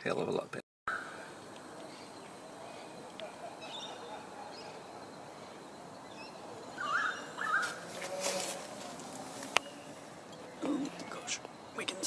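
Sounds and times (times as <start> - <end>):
short warbling bird calls: 0.9 - 8.0
faint bird chirps: 0.9 - 12.0.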